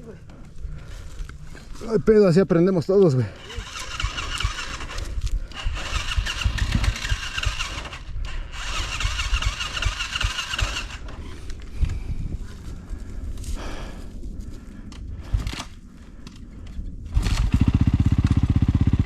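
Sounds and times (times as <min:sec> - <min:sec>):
dirt bike engine cranking: 0:03.4 - 0:11.7, 0:17.1 - 0:19.0.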